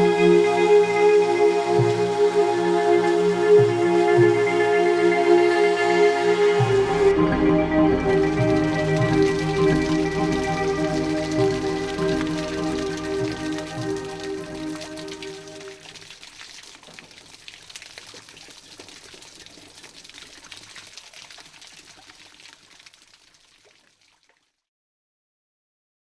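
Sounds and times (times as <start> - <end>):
calm music with held notes: 0.0 - 15.8
waterfall spattering: 8.0 - 24.0.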